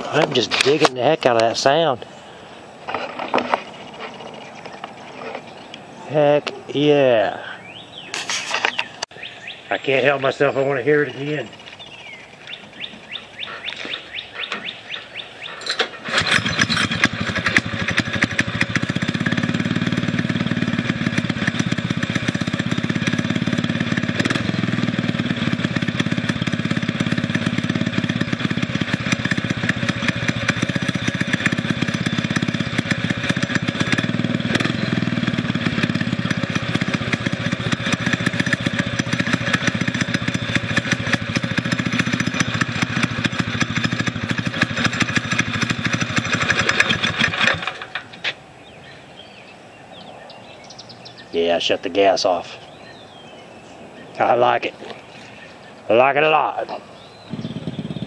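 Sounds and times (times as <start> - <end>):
small engine starting and running: 10.8 - 48.4, 56.0 - 58.0.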